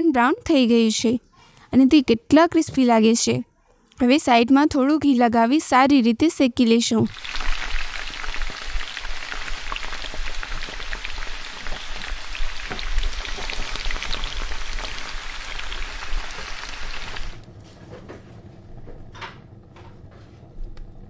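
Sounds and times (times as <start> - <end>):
ghee sizzling on a hot pan: 7.1 - 17.4.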